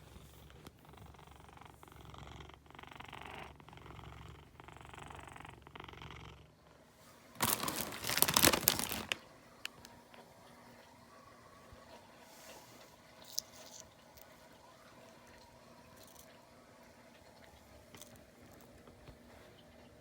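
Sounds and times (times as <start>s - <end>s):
cat purring: 0.0s - 6.6s
loud rustling: 7.4s - 9.2s.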